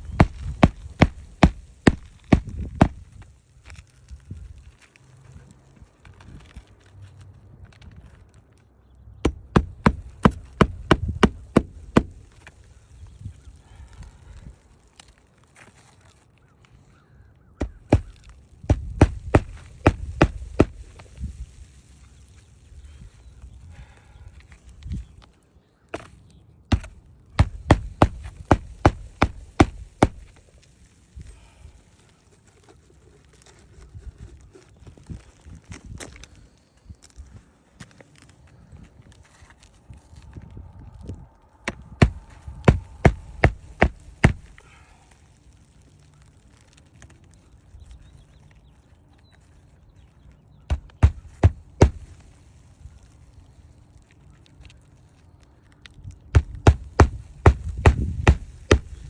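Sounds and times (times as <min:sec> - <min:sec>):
sharp knocks: 0:09.3 - 0:12.2, 0:17.6 - 0:20.8, 0:26.7 - 0:30.3, 0:41.7 - 0:44.5, 0:50.7 - 0:52.1, 0:56.4 - 0:59.0
hammer blows: 0:17.6 - 0:20.8, 0:26.7 - 0:30.3, 0:41.7 - 0:44.6, 0:50.7 - 0:52.2, 0:56.4 - 0:59.0.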